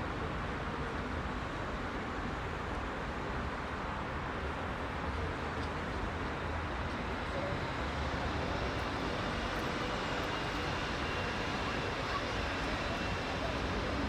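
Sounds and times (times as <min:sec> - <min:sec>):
heavy road traffic: 0:04.2 - 0:14.0.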